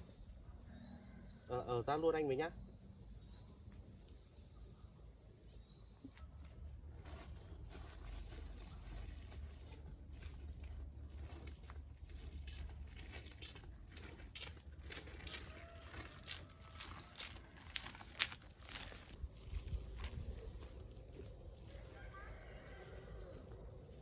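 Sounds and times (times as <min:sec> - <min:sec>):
footsteps: 0:07.0 - 0:21.4.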